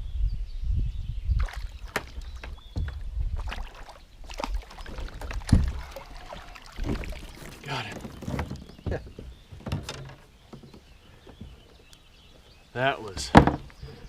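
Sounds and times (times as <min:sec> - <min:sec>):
knocks on kayak: 0:01.9 - 0:03.0, 0:13.2 - 0:13.7.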